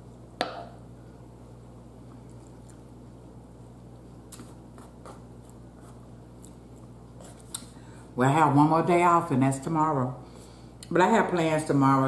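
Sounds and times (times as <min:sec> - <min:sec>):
steady low hum: 0:00.0 - 0:12.0
quiet chewing: 0:02.1 - 0:03.0, 0:04.3 - 0:07.8.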